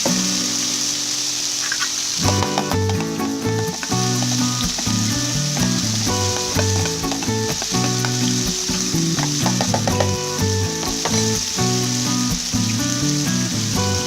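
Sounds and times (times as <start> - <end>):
background music: 0.0 - 14.0
meat sizzling in hot oil: 0.0 - 14.0
utensil clicking against pan: 1.7 - 10.2.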